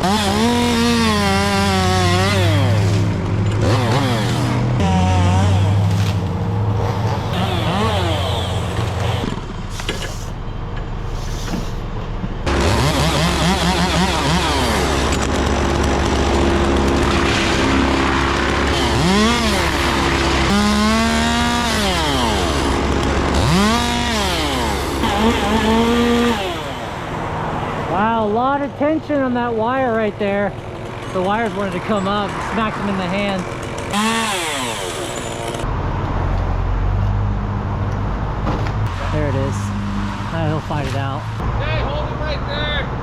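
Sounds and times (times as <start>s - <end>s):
chainsaw revving: 0.0s - 9.3s, 12.5s - 27.3s, 30.5s - 35.7s.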